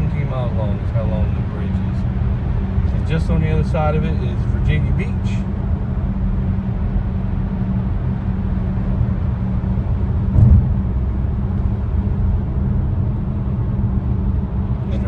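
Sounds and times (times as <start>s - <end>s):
road and engine rumble: 0.0s - 15.0s
short thump: 10.3s - 11.0s.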